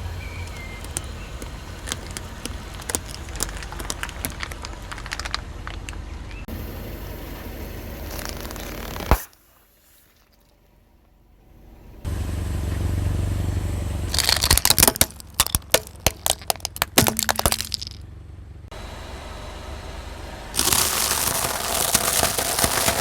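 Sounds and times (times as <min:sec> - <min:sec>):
car engine rumbling: 0:00.0 - 0:09.1, 0:10.7 - 0:23.0
tyre crushing brittle objects: 0:00.4 - 0:06.4, 0:08.1 - 0:09.3, 0:14.1 - 0:18.0, 0:20.6 - 0:23.0.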